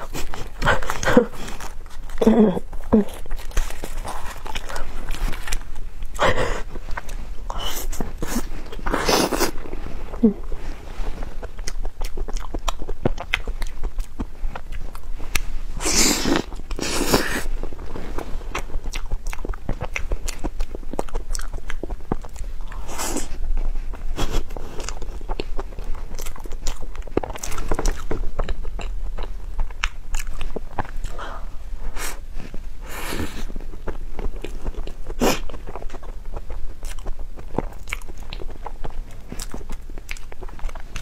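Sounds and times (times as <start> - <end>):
wet chewing mouth clicks: 11.4 - 17.6, 18.5 - 31.2.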